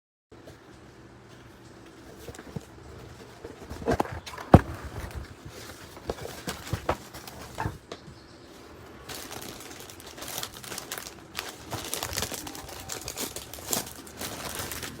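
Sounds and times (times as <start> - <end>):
wrapping rustling: 1.9 - 7.8, 8.5 - 15.0
package knocks and bumps: 3.5 - 7.8.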